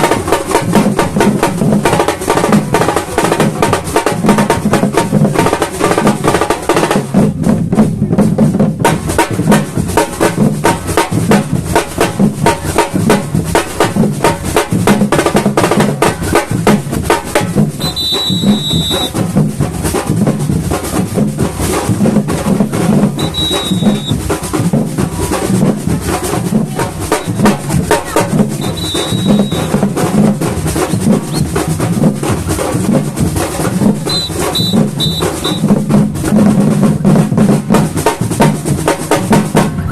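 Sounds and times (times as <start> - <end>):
samba drum ensemble: 0.0 - 39.9
high whistle blasts: 17.8 - 19.2, 23.2 - 24.2, 28.6 - 29.8, 34.1 - 35.7.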